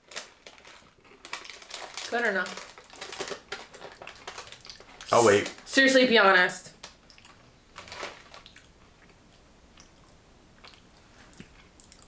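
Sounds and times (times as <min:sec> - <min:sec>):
chewing crunchy snack: 0:00.6 - 0:02.0, 0:02.6 - 0:05.1, 0:09.8 - 0:12.0.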